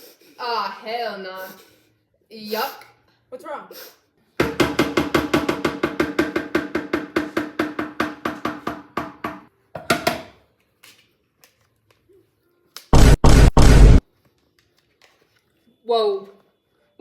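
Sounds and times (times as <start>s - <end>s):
pitched percussive knocks: 4.4s - 9.3s.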